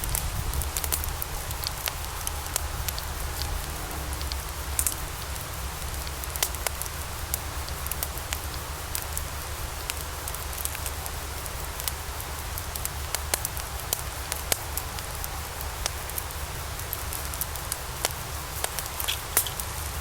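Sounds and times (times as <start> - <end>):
logs crackling in a fireplace: 0.0 - 20.0.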